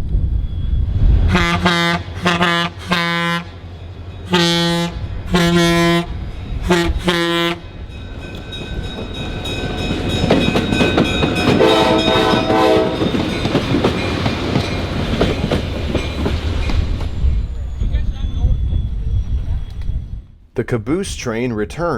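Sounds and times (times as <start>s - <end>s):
train passing rumble: 0.0s - 20.5s
pulsing horn-like tone: 1.2s - 3.5s, 4.3s - 7.6s, 11.6s - 13.1s
train horn blasts: 1.3s - 3.6s, 4.3s - 7.7s, 11.5s - 13.2s
wheels clacking over rail joints: 8.1s - 17.2s.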